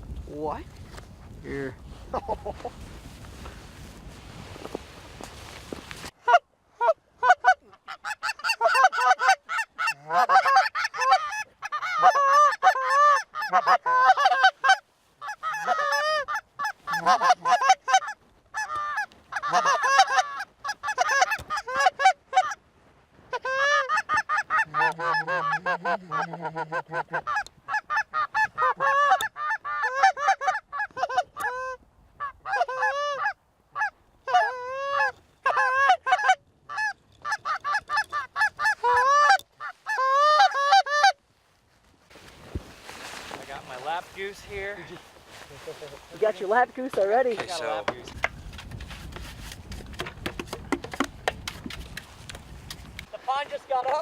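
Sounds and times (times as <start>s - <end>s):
goose honks and clucks: 6.2s - 22.6s, 23.3s - 41.2s.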